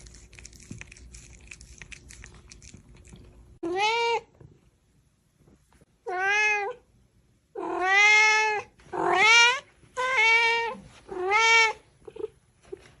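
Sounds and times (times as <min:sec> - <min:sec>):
cat meowing: 0:07.6 - 0:11.8.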